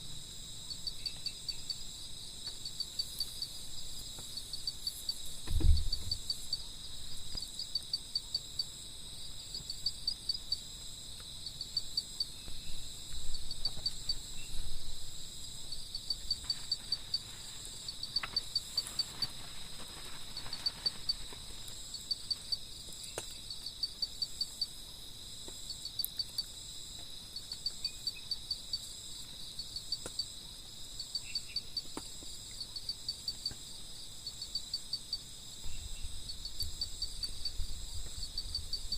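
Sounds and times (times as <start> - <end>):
insects chirping: 0.0 - 38.9
low thump: 5.4 - 6.3.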